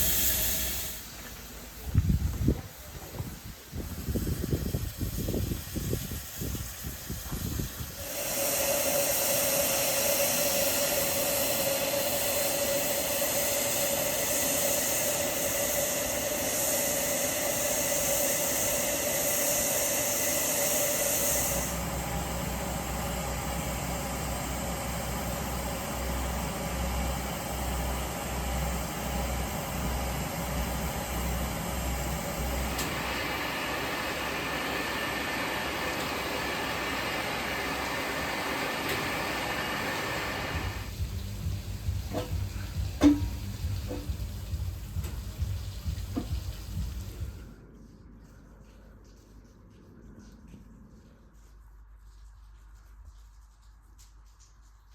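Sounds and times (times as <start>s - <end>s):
steam hissing: 0.0s - 47.5s
low throbbing hum: 21.4s - 35.8s, 40.5s - 53.3s.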